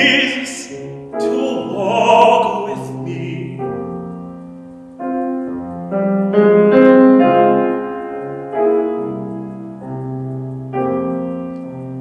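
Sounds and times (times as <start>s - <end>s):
person singing: 0.0s - 4.0s
piano chords: 0.0s - 12.0s.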